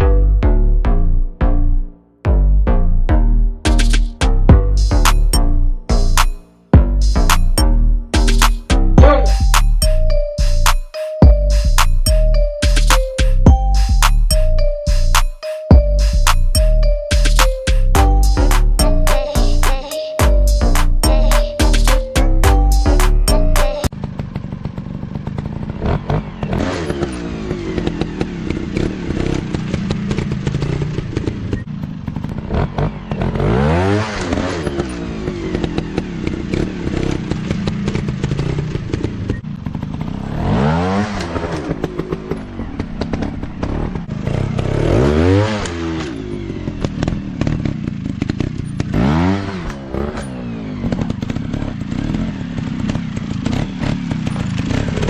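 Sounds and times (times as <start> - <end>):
dirt bike engine revving: 20.4 - 55.0.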